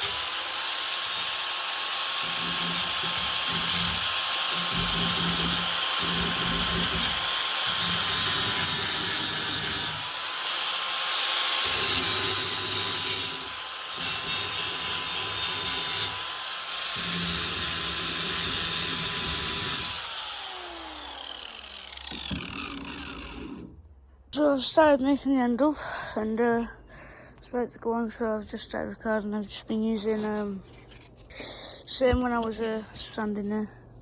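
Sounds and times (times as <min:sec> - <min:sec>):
rotary power tool grinding: 0:00.0 - 0:23.8.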